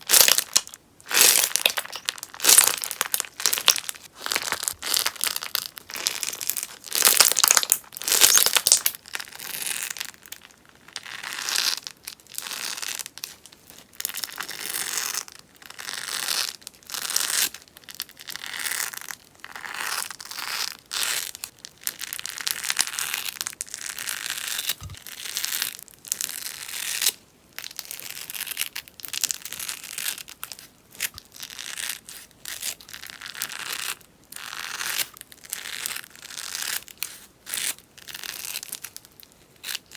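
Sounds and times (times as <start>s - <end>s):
slime crackling and popping: 0.0s - 11.0s.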